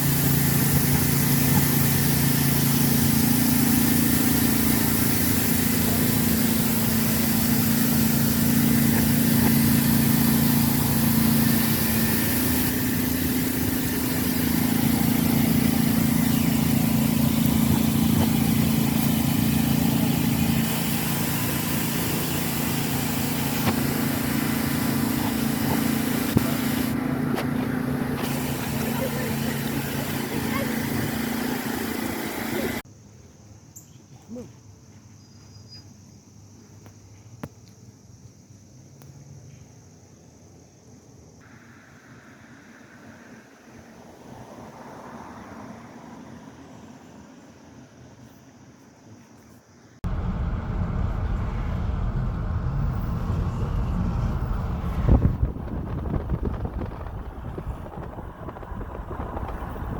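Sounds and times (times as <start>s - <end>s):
vehicle engine hum: 0.0s - 32.8s, 50.0s - 59.9s
even rush of noise: 50.0s - 59.9s.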